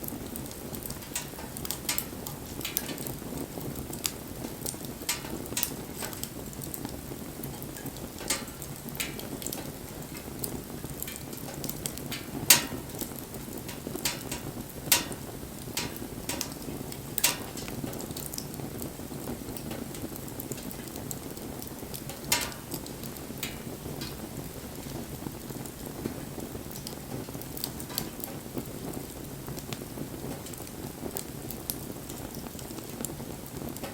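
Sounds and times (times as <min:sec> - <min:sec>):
burning wood popping: 0:00.0 - 0:33.9
campfire crackling: 0:00.0 - 0:33.9.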